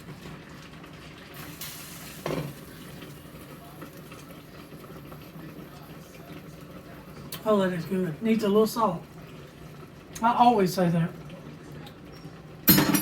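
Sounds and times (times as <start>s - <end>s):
pot boiling and bubbling: 0.0s - 13.0s
kitchen utensils clinking: 11.8s - 13.0s.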